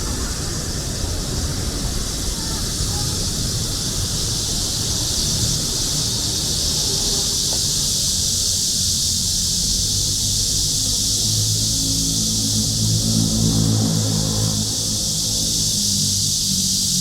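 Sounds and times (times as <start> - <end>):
cicadas singing: 0.0 - 17.0
low rumble of city traffic: 0.0 - 17.0.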